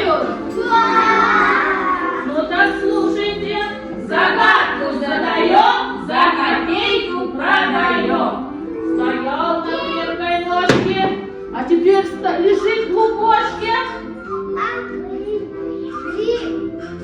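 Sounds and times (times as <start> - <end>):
held accompaniment notes: 0.0 - 17.0
children singing together: 0.4 - 6.0, 14.5 - 17.0.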